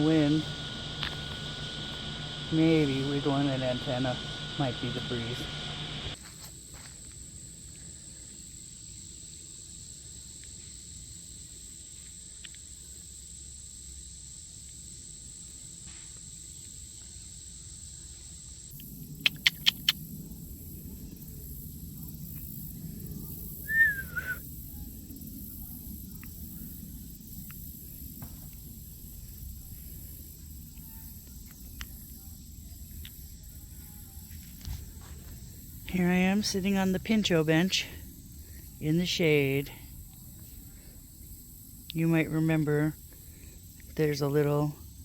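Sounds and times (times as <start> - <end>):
high insect drone: 0.0 - 45.0
quick sharp clicks: 18.8 - 20.0.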